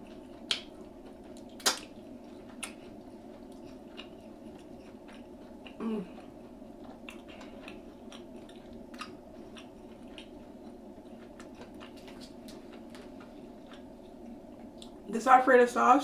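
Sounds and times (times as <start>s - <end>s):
person chewing food: 0.0s - 15.0s
low background hum: 0.0s - 16.0s.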